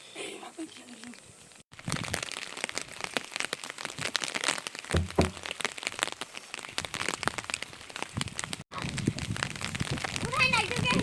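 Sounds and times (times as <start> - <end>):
raindrops pattering: 0.6 - 11.0
dull thumps: 4.9 - 5.6.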